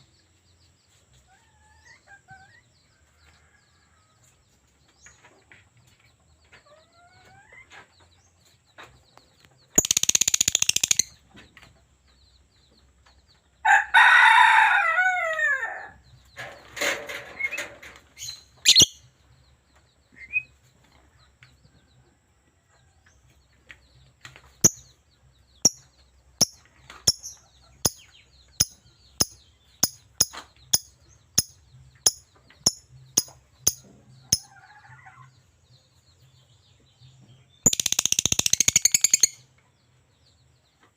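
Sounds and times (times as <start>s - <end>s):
lovebird calling: 9.8s - 11.1s, 18.6s - 19.0s, 37.7s - 39.4s
sharp high bird chirps: 9.8s - 11.2s, 18.6s - 19.0s, 25.6s - 34.5s, 37.6s - 39.4s.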